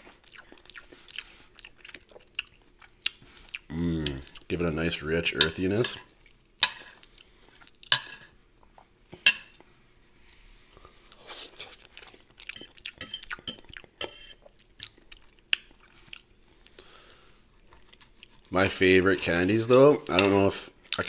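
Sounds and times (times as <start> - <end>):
close chewing with wet mouth clicks: 0.1 - 4.5, 14.5 - 16.8
cutlery clinking on a plate: 12.6 - 14.4.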